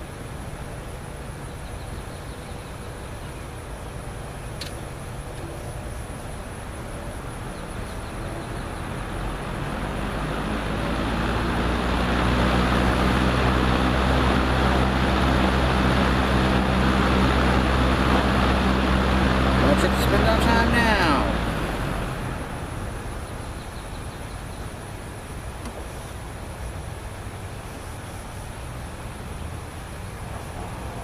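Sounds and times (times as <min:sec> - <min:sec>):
low motor hum: 0:01.4 - 0:31.0
box fan whooshing: 0:08.7 - 0:23.4.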